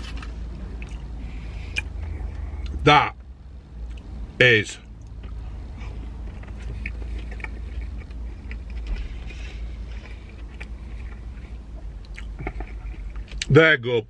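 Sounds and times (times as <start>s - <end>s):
chewing crunchy food: 4.9s - 13.5s.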